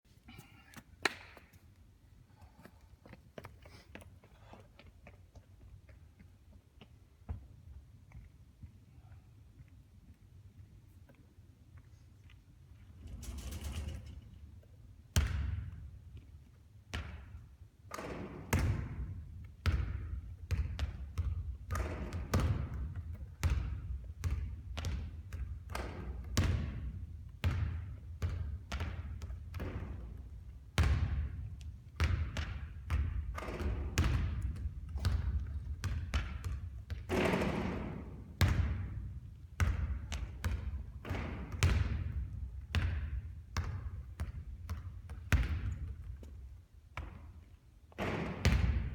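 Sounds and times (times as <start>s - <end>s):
basketballs bouncing on court: 15.1s - 16.3s, 16.9s - 48.9s.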